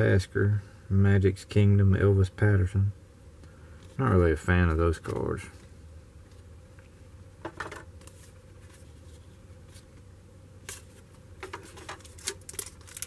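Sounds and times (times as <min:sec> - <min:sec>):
faint low hum: 0:00.0 - 0:13.0
trading cards flipped by hand: 0:05.0 - 0:05.3, 0:07.6 - 0:10.0, 0:10.6 - 0:13.0.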